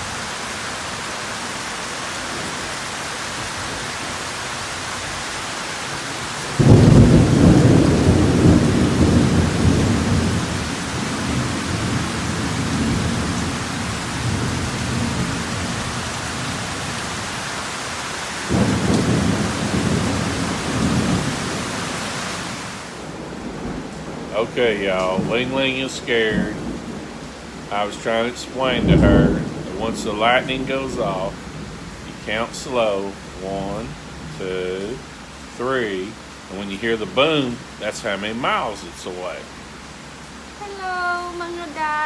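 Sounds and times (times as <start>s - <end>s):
heavy rain: 0.0s - 42.0s
thunder rumbling: 6.1s - 17.5s, 18.4s - 39.4s.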